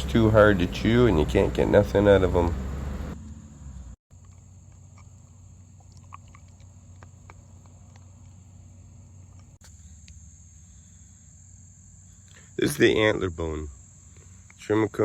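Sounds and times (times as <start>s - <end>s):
crickets trilling: 4.1s - 15.0s.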